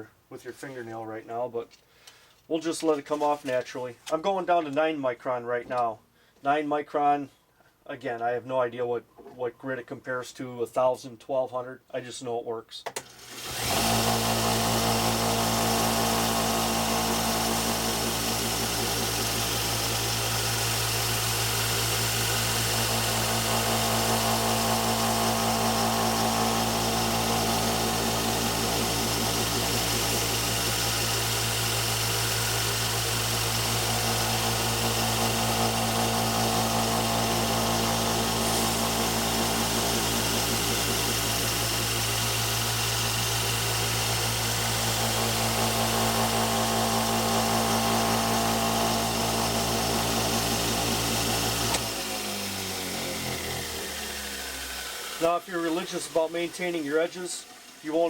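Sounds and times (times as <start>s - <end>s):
belt sander motor humming: 13.2s - 57.9s
hiss of moving sanding belt: 35.2s - 41.7s.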